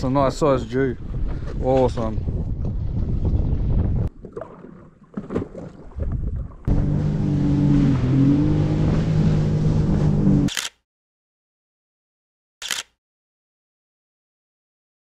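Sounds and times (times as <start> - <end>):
wind on microphone: 0.0 - 4.2, 5.8 - 10.3
jet ski engine running: 6.7 - 10.5.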